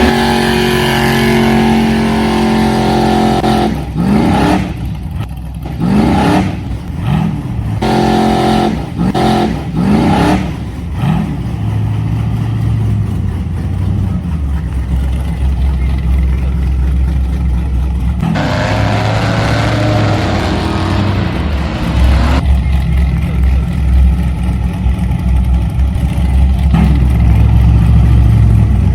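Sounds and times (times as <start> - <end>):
vehicle motor revving: 0.0 - 23.7.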